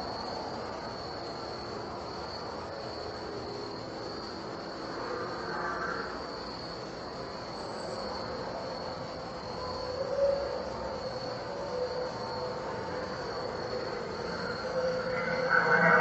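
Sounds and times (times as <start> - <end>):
night insects chirping: 0.0 - 16.0
faint wavering tones: 9.4 - 16.0.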